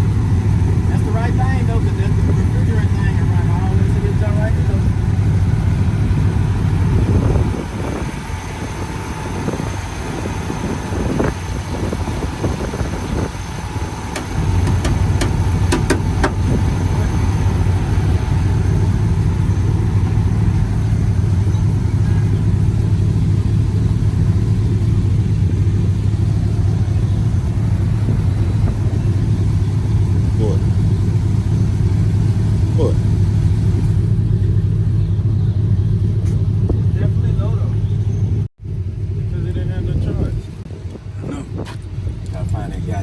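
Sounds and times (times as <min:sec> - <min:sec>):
truck engine idling: 0:00.0 - 0:43.0.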